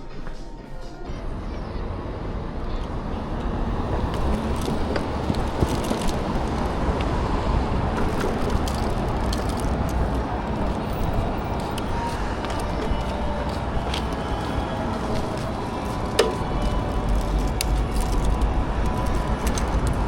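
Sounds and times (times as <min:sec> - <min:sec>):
road vehicle rumble: 0:01.0 - 0:20.0
light clicks and rattles: 0:08.0 - 0:12.8.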